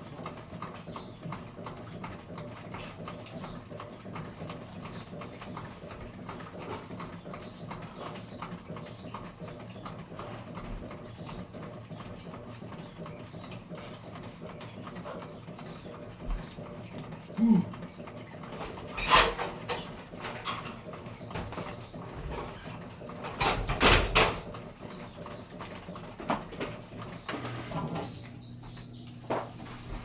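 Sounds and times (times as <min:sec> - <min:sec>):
low machine hum: 0:00.0 - 0:30.0
sharp knocks and clatter: 0:18.0 - 0:29.6.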